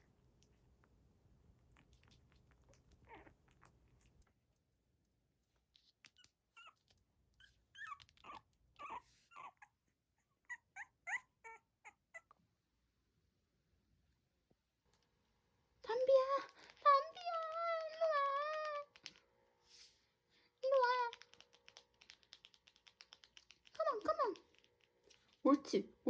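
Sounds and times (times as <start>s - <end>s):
puppies squeaking: 6.1s - 12.3s
puppies whimpering: 7.4s - 9.8s, 10.4s - 12.3s.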